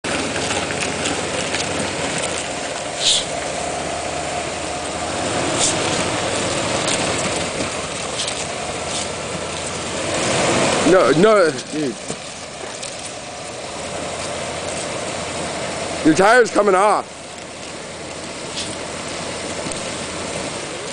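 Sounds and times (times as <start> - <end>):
car engine and rolling noise: 0.0 - 20.9
short hissing scrapes: 3.0 - 3.4, 5.5 - 6.0.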